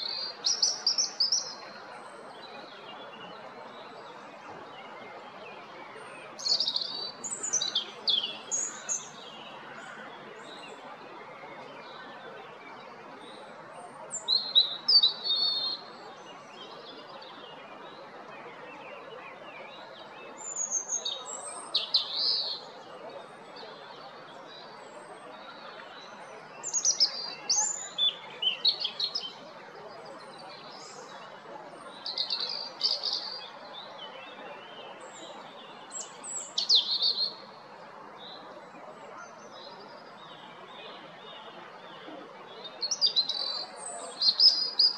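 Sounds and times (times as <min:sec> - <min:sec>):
low background noise: 0:00.0 - 0:44.9
robin singing: 0:26.6 - 0:29.4, 0:32.0 - 0:33.8.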